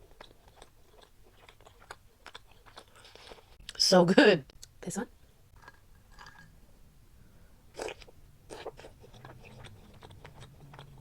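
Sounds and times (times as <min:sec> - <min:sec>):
chewing soft bread: 0:00.0 - 0:03.8, 0:07.7 - 0:11.0.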